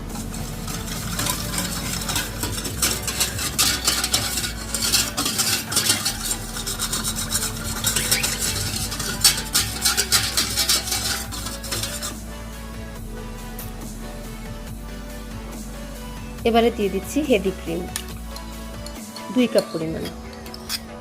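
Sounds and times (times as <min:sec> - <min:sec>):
utensil clinking and scraping container: 0:00.0 - 0:12.6, 0:17.4 - 0:21.0.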